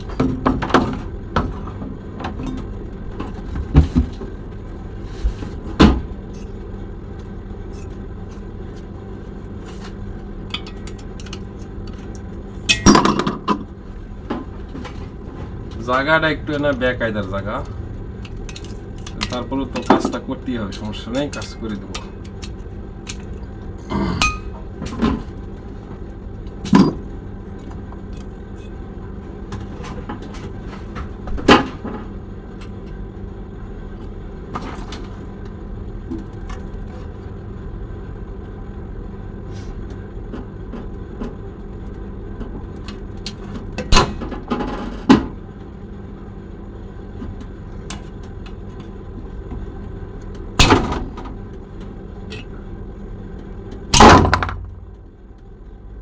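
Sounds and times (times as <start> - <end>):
low hum: 1.3 - 31.2.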